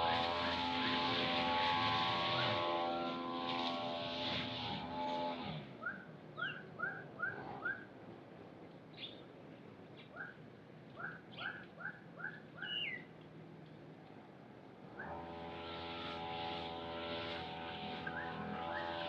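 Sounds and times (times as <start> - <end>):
motor winding down: 0.0 - 5.7, 15.0 - 19.0
bird whistling: 5.8 - 7.9, 11.0 - 13.1.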